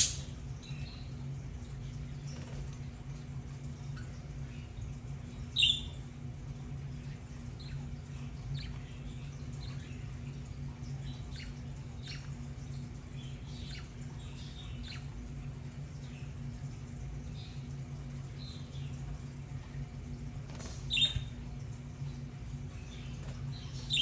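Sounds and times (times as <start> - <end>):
budgerigars chirping: 0.0 - 0.3, 5.5 - 6.0, 20.6 - 21.4, 23.7 - 24.0
steady low hum: 0.0 - 24.0.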